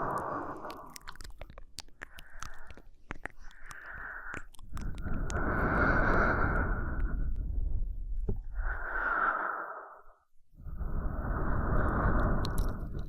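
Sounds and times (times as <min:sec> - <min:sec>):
person breathing: 0:00.0 - 0:01.1, 0:02.0 - 0:13.0
wet mouth clicks: 0:00.0 - 0:07.2, 0:11.8 - 0:13.0.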